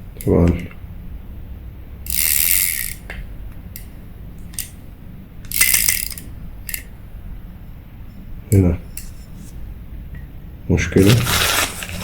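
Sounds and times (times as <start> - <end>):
fishing reel gears whirring: 2.1 - 3.0, 5.5 - 6.8.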